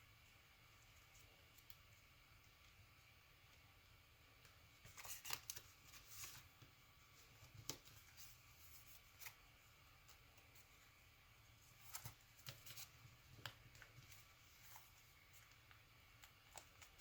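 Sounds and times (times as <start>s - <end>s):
paper crackles: 4.8s - 9.5s, 11.6s - 17.0s
paper rustling and crinkling: 4.8s - 10.7s, 11.6s - 17.0s.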